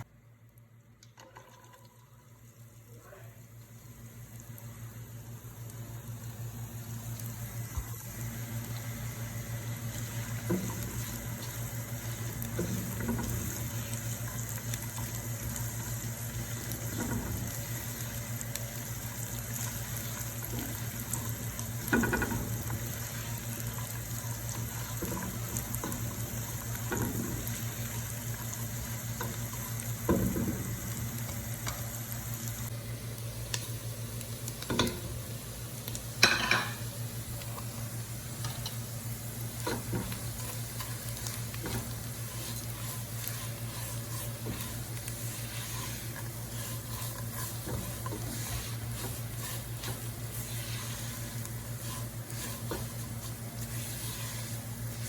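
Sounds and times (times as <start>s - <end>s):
steady low hum: 2.2s - 55.0s
spoon stirring and scraping pot: 39.6s - 55.0s.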